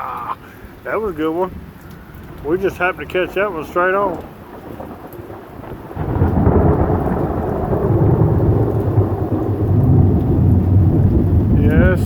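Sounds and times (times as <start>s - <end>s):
deep rumble of thunder: 1.5s - 12.0s.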